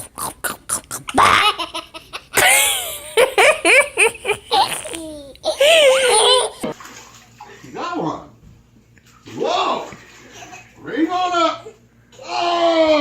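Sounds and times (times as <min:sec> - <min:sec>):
young child laughing: 0:01.0 - 0:06.7.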